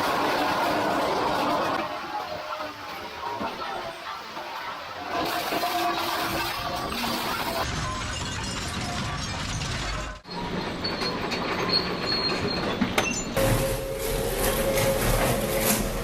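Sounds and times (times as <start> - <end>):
industrial machinery grinding and clattering: 5.1 - 16.0.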